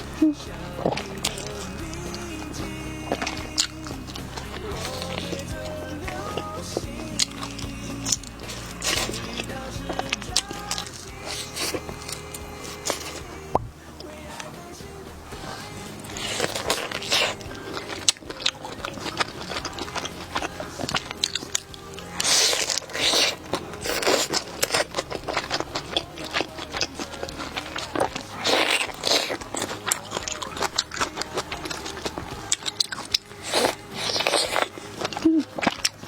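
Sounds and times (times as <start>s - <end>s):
background music: 0.0s - 36.0s
biting into burger: 0.0s - 36.0s
crackly wet chewing: 0.0s - 36.0s.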